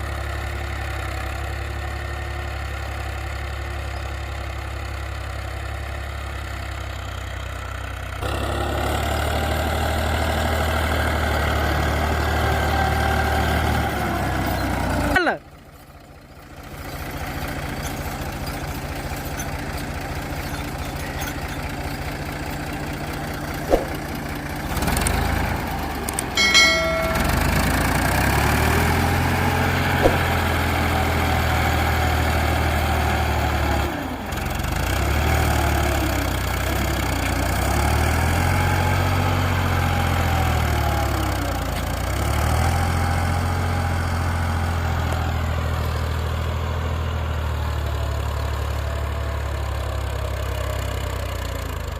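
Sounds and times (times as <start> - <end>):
tractor engine running: 0.0 - 51.9
brief ringing tone: 26.4 - 28.0.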